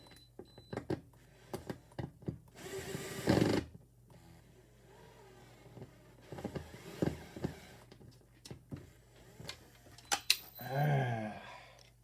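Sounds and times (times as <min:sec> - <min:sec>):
light clicks and knocks of tools: 0:11.7 - 0:12.0.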